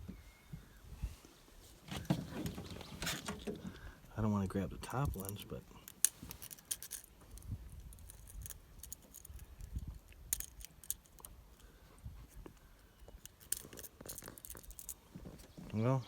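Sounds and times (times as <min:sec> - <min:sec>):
fishing tackle clicking and rattling: 0:05.0 - 0:11.6, 0:13.2 - 0:15.0.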